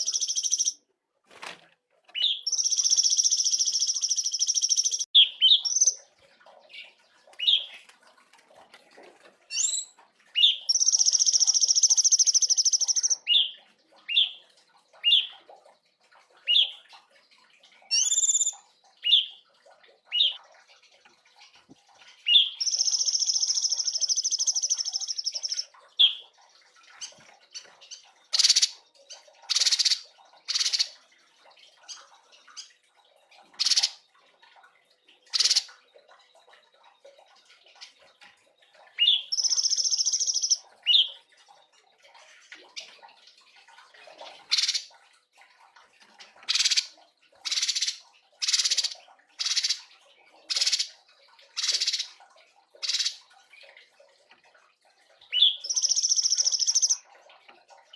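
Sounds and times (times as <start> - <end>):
songbird singing: 0.0 - 0.8, 2.2 - 6.1, 9.5 - 15.4, 22.2 - 26.3, 39.0 - 41.2, 55.3 - 57.0.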